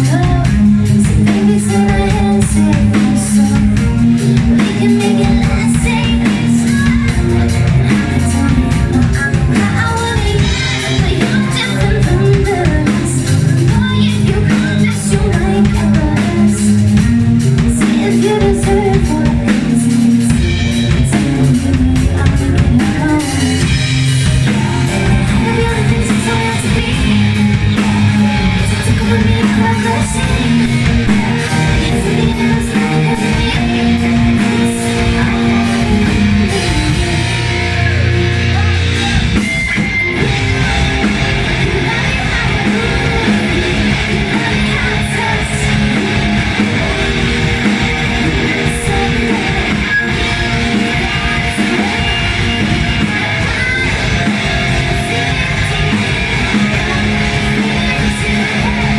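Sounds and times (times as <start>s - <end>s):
drum kit: 0.0s - 58.9s
electric guitar: 0.0s - 58.9s
person singing: 0.0s - 58.9s.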